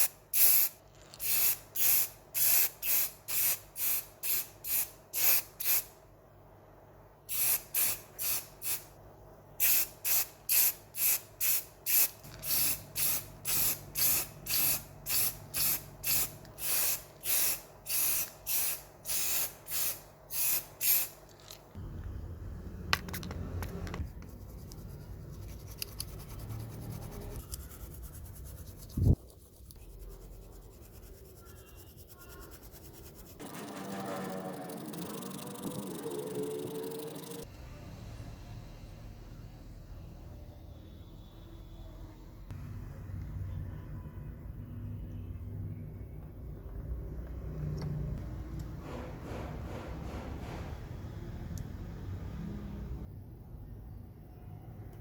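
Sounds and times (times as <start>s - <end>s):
spray paint hissing in bursts: 0.0s - 5.9s, 7.3s - 8.9s, 9.6s - 21.2s.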